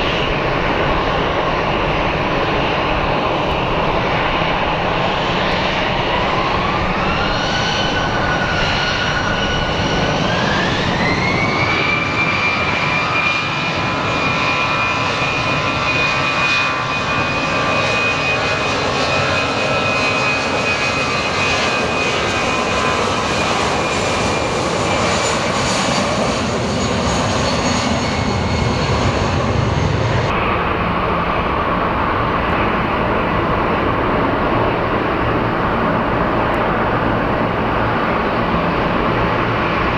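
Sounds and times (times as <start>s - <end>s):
jet engines spooling up: 0.0s - 13.3s, 28.0s - 39.9s.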